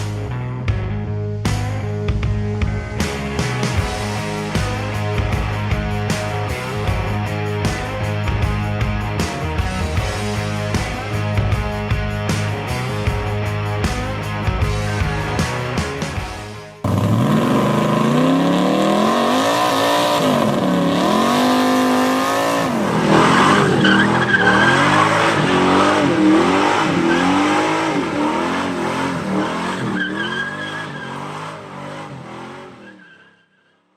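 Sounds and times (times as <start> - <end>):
engine revving: 2.7 - 32.9
tyres squealing: 22.8 - 27.8, 29.6 - 31.4.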